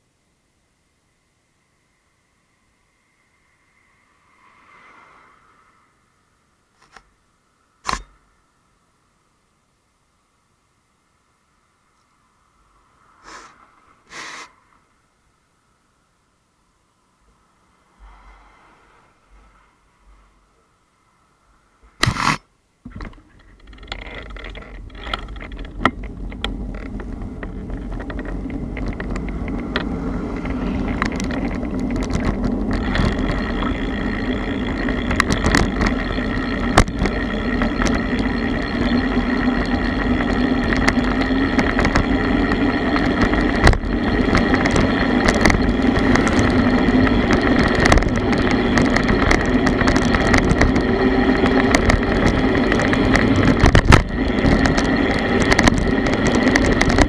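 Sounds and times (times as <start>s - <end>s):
wind: 0.0s - 57.0s
bicycle tyres rumbling on road: 21.6s - 57.0s
sharp ticks and rattles: 22.0s - 57.0s.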